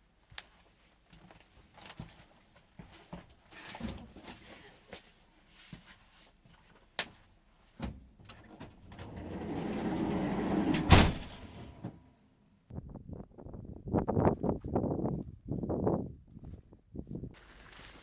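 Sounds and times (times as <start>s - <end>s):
sliding door rumbling along track: 8.4s - 12.1s
sliding door slamming: 8.6s - 12.1s
door latch clicks: 9.0s - 11.7s.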